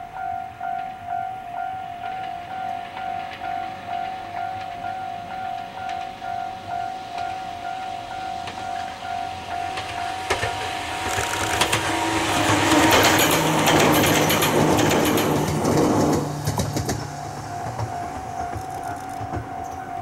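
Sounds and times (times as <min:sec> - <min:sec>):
electric train passing: 0:00.0 - 0:20.0
wheels clicking over rail joints: 0:08.4 - 0:20.0.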